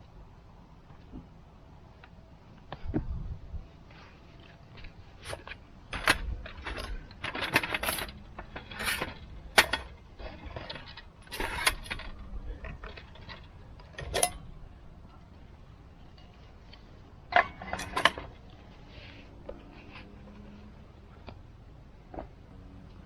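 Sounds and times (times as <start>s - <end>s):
metal objects clinking: 17.3s - 18.4s.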